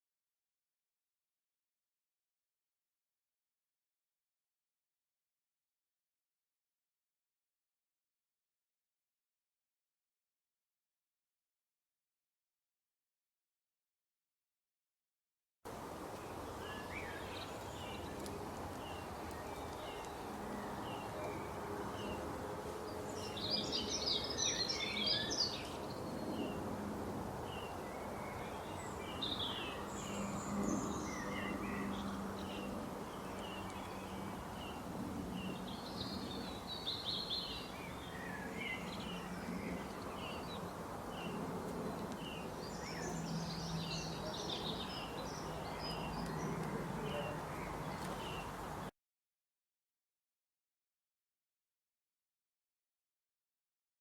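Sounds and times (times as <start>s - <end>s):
outdoor background hiss: 15.7s - 48.9s
small birds chirping: 16.2s - 22.3s, 22.9s - 26.6s, 27.4s - 48.8s.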